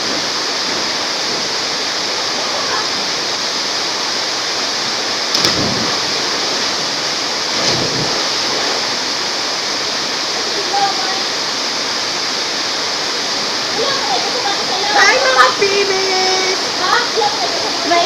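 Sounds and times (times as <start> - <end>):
waterfall roaring: 0.0 - 18.0
brief splashes or knocks: 5.3 - 6.4, 7.5 - 8.8.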